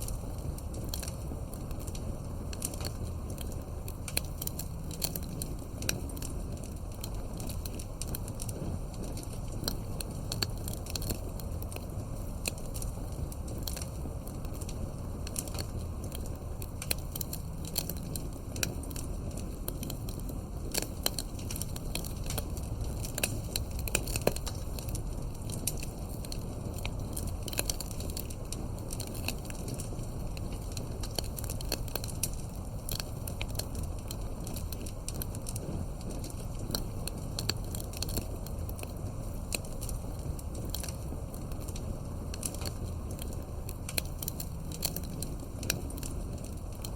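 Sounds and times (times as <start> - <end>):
firewood crackling and popping: 0.0 - 46.9
low rumble of flames: 0.0 - 46.9.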